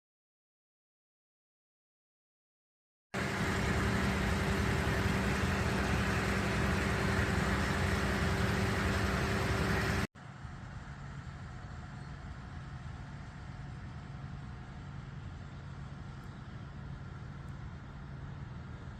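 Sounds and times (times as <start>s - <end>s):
vehicle engine running: 3.2s - 11.7s.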